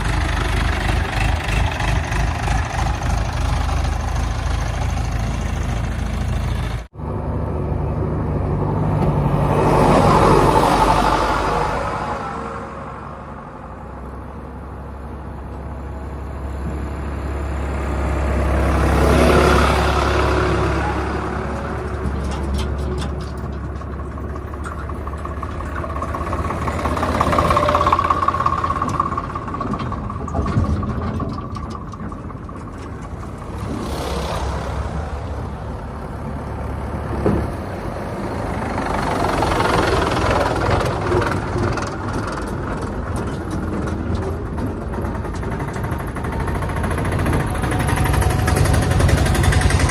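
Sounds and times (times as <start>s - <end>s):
heavy diesel engines running: 0.0s - 49.9s.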